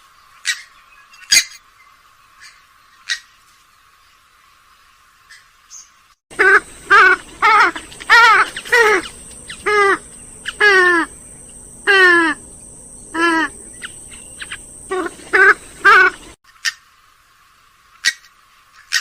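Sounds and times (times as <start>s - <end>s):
swamphen nasal calls: 6.3s - 16.8s.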